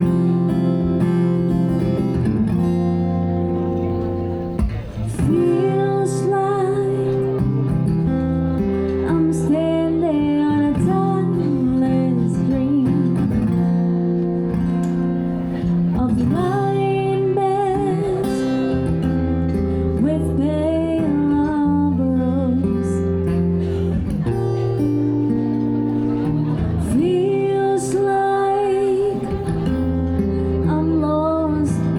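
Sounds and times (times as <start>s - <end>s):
acoustic guitar chords: 0.0s - 31.9s
person singing: 4.6s - 8.0s, 8.7s - 13.6s, 15.6s - 19.0s, 26.4s - 31.9s.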